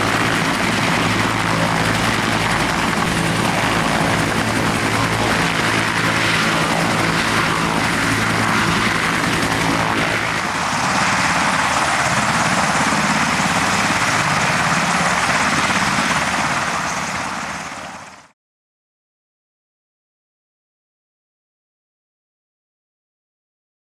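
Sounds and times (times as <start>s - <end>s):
helicopter flying past: 0.0s - 18.4s.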